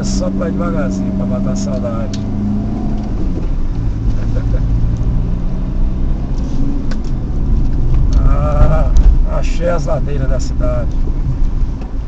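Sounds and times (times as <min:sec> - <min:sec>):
car engine humming: 0:00.0 - 0:12.0
road rumble: 0:00.0 - 0:12.0.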